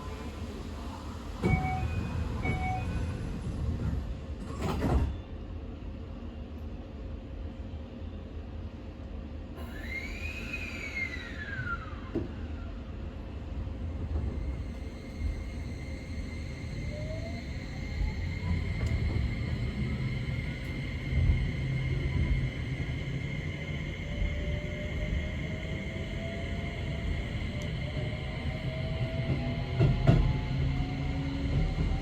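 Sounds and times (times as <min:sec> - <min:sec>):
train wheels rumbling on rail: 0:00.0 - 0:05.7, 0:09.6 - 0:32.0
train motor whine: 0:14.0 - 0:32.0.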